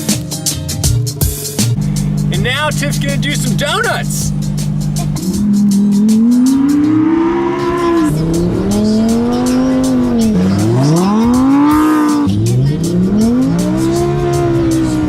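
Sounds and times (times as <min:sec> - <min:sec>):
car engine revving: 0:01.6 - 0:15.0.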